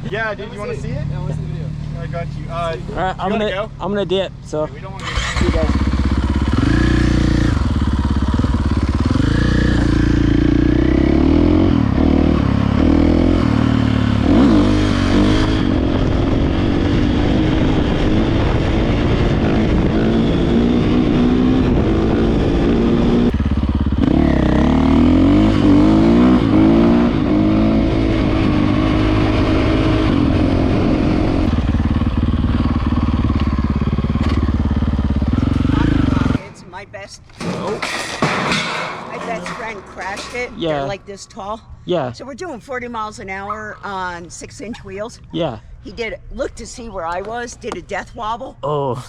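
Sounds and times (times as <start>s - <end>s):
dirt bike engine revving: 4.9s - 36.8s.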